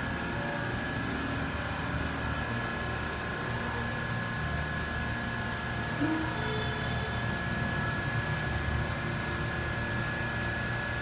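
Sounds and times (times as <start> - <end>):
high whine: 5.4 - 11.0.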